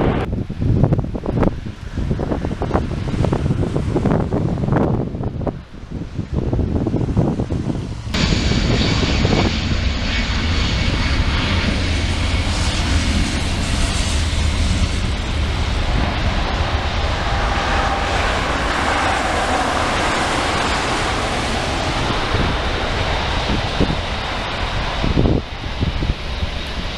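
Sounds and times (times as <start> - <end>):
jet engines roaring: 0.0 - 26.9.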